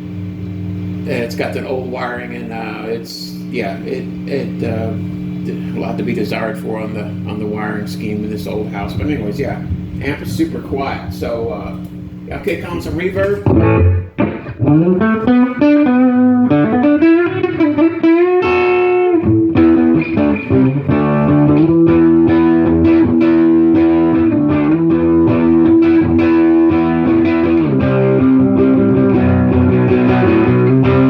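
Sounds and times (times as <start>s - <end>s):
electric guitar through amp: 11.7s - 31.0s.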